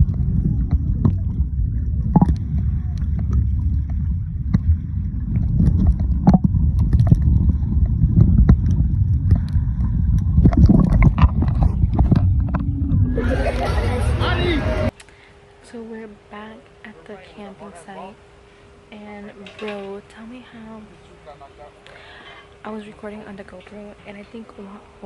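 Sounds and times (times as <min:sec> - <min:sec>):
muffled water sloshing and gurgling: 0:00.0 - 0:14.9.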